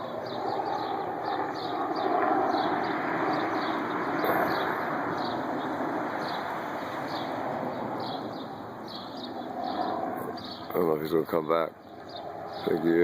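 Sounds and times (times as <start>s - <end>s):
birds chirping: 0.0s - 13.0s
helicopter rotor chop and engine: 0.0s - 13.0s.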